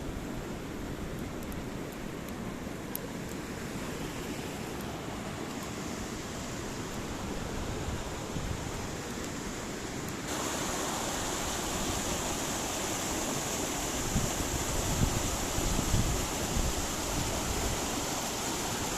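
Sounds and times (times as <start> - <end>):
stream water rushing: 0.0 - 18.9
wind buffeting microphone: 13.9 - 18.1.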